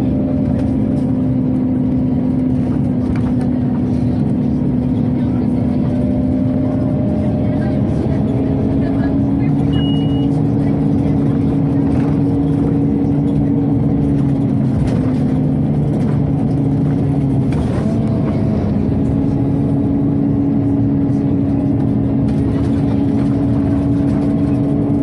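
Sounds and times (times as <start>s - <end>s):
bus running: 0.0s - 25.0s.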